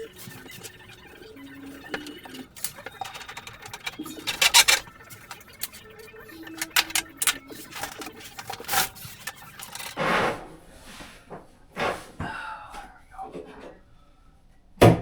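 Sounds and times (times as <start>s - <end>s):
tools and parts rattling: 0.1s - 10.0s.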